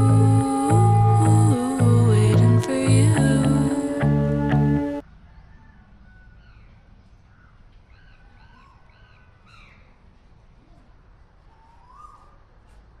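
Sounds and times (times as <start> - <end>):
birds calling: 5.6 - 10.0, 11.5 - 12.8.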